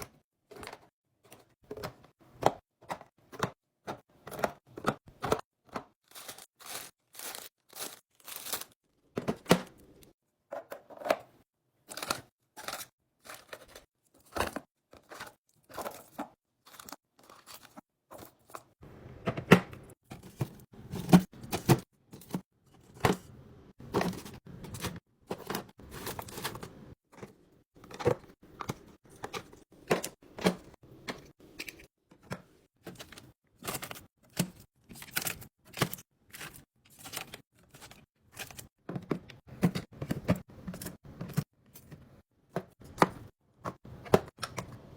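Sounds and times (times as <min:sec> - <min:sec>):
plastic wrappers crinkling: 0:06.0 - 0:08.8.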